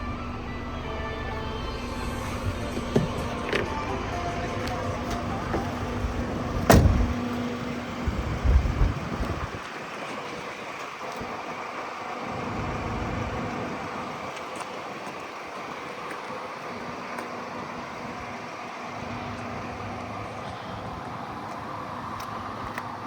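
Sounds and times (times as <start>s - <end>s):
van engine running: 0.0s - 23.0s
heavy thumps: 2.2s - 7.3s.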